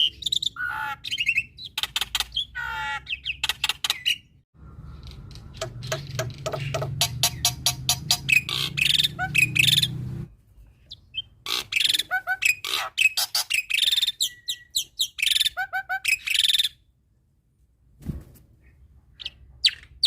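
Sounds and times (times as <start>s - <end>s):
bird chattering and whistling: 0.0s - 4.3s, 5.0s - 10.1s, 10.9s - 16.8s.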